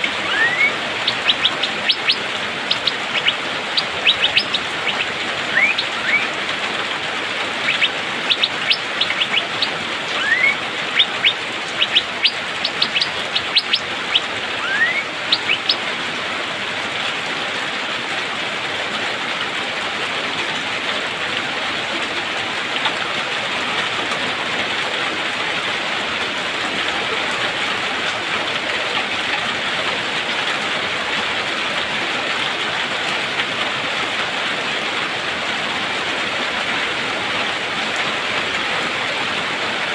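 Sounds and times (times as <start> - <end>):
steady rain hiss: 0.0 - 39.9
bird short sharp calls: 0.1 - 6.3, 7.6 - 15.8
bird rising whistles: 0.2 - 2.2, 10.2 - 10.6, 14.6 - 15.7.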